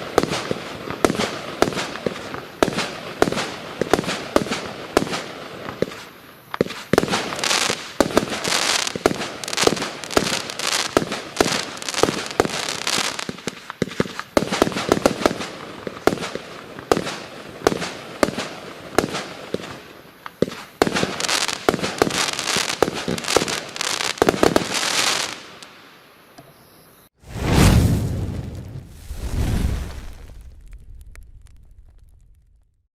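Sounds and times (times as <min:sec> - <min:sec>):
fireworks bangs and pops: 0:00.0 - 0:25.6, 0:27.2 - 0:32.9.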